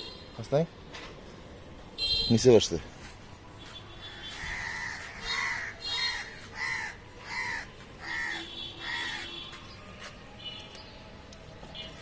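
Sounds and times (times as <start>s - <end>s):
crow cawing: 4.0s - 9.4s.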